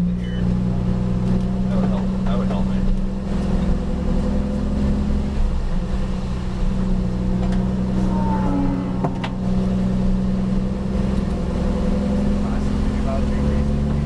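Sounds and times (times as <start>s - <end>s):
race car engine from inside cabin: 0.0s - 14.0s.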